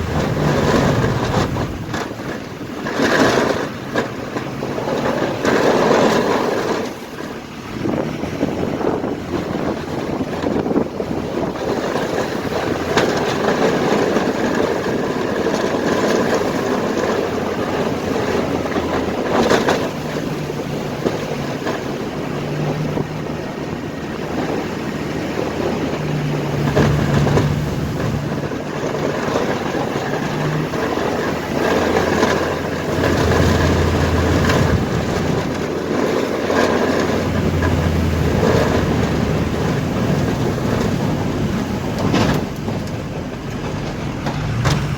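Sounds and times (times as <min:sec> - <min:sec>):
knocks and rattles: 0:00.0 - 0:44.9
road and wind noise: 0:00.0 - 0:44.9
truck engine drone: 0:00.0 - 0:44.9.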